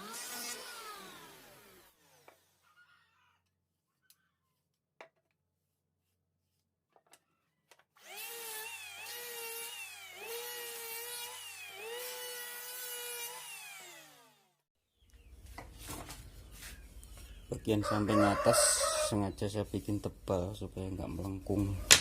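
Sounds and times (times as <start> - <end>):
power tool motor on wood: 0.0 - 3.2, 8.0 - 14.6.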